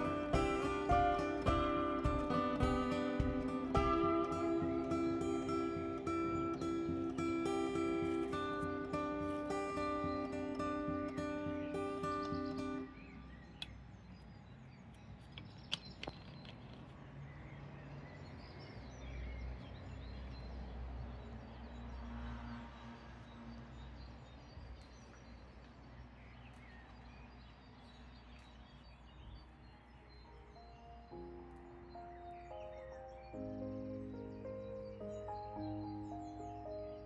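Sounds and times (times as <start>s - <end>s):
faint bird chirps: 23.2s - 37.0s.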